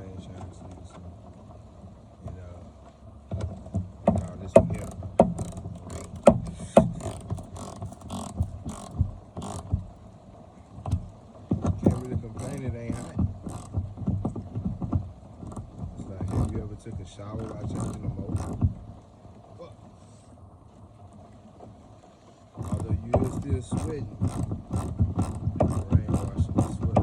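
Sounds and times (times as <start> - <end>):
metallic clanks and knocks: 3.4 - 10.0.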